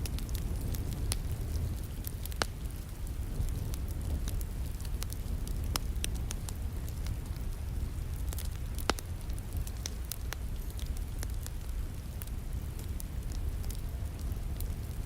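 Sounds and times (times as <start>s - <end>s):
wood fire crackling and snapping: 0.0s - 15.0s.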